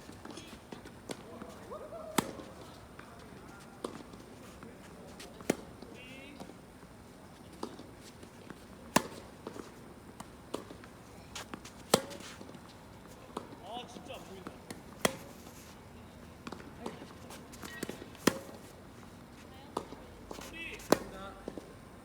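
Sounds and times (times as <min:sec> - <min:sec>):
tennis ball bouncing: 0:00.2 - 0:03.1, 0:05.1 - 0:06.6, 0:07.6 - 0:12.7, 0:14.4 - 0:15.4, 0:16.4 - 0:18.7, 0:19.8 - 0:21.6
racquet hitting tennis ball: 0:02.1 - 0:02.7, 0:08.9 - 0:09.4, 0:11.6 - 0:12.4.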